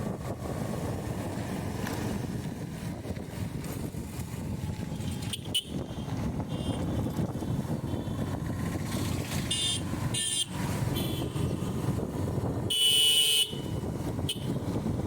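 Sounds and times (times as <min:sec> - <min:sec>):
motorcycle engine and road rumble: 0:00.0 - 0:15.0
vehicle horn toots: 0:05.1 - 0:07.0, 0:09.4 - 0:11.5, 0:12.7 - 0:14.6.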